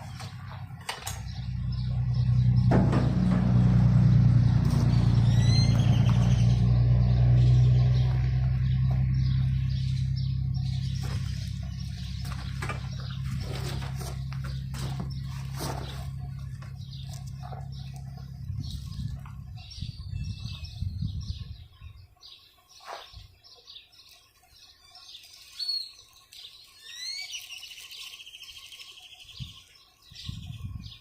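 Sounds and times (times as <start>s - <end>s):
bird chirping: 0.0s - 3.4s, 4.0s - 31.0s
vehicle engine hum: 0.0s - 21.6s.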